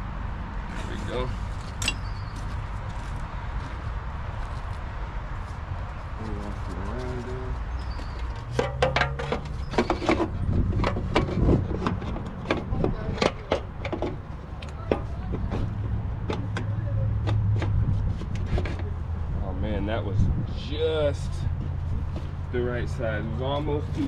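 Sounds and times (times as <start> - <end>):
metal parts knocking and clanking: 1.6 - 2.1, 8.3 - 14.2.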